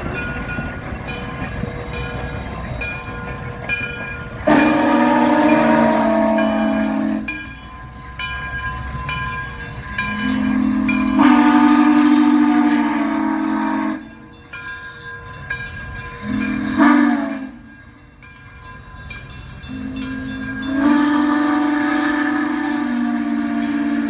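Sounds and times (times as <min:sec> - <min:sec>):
steam locomotive whistle: 0:04.3 - 0:07.6, 0:09.9 - 0:14.3, 0:16.2 - 0:17.8, 0:19.7 - 0:24.0.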